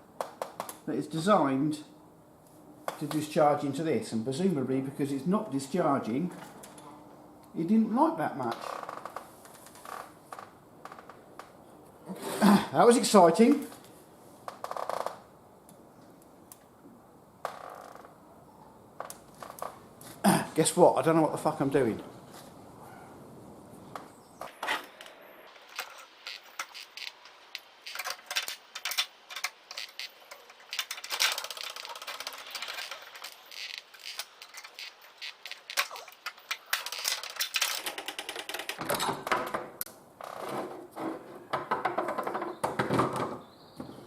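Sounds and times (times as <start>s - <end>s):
tools and metal parts rattling: 25.6s - 39.3s.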